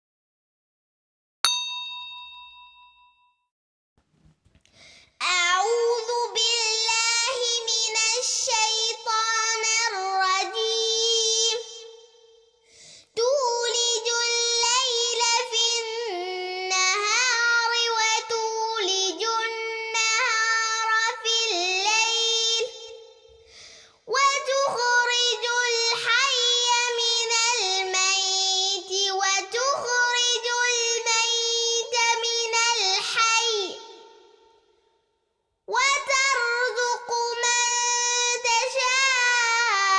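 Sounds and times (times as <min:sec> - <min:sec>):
faint breath: 0:04.6 - 0:05.2, 0:12.6 - 0:13.2, 0:23.3 - 0:24.1
girl reciting melodic chant: 0:05.1 - 0:12.2, 0:13.0 - 0:34.6, 0:35.7 - 0:39.9.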